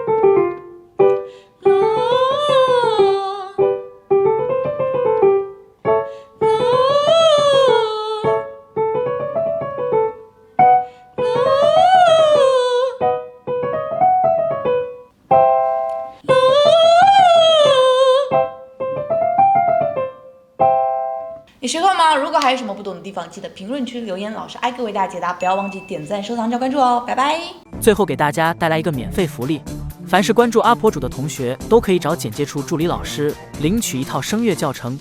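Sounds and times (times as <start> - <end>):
piano: 0.0 - 21.6, 28.6 - 35.0
woman singing vocal warm-up: 1.6 - 3.8, 6.4 - 8.4, 11.2 - 13.1, 16.2 - 18.6.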